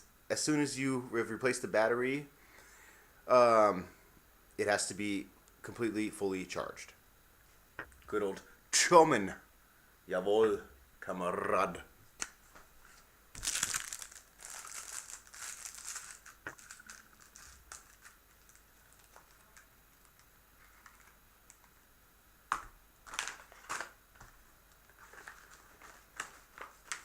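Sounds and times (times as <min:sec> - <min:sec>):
packaging crinkling: 0:12.9 - 0:21.6, 0:23.0 - 0:27.0.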